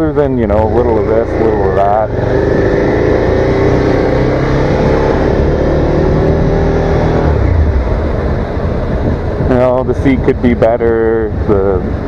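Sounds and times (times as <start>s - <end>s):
motorcycle engine pulling under throttle: 0.5s - 9.4s.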